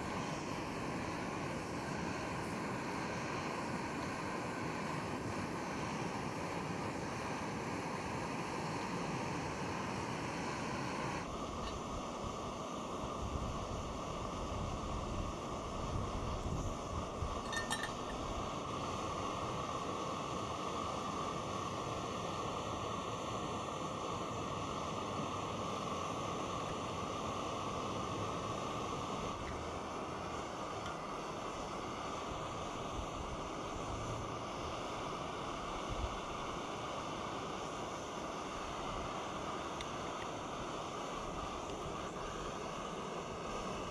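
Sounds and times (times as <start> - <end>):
short clink: 17.4 - 18.2.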